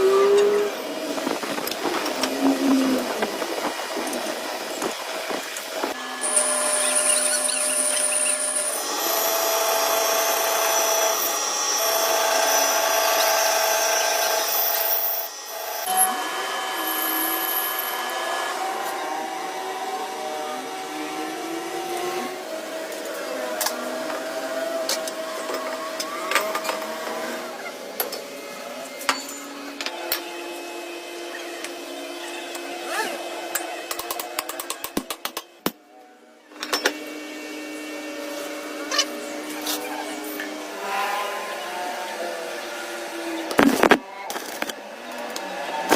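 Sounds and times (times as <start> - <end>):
power tool whine: 0.0 - 28.5.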